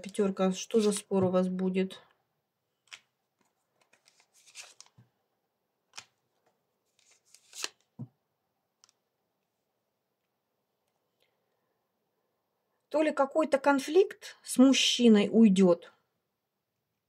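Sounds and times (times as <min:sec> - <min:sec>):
cards being handled: 0:00.0 - 0:01.2, 0:02.8 - 0:05.1, 0:05.9 - 0:08.1.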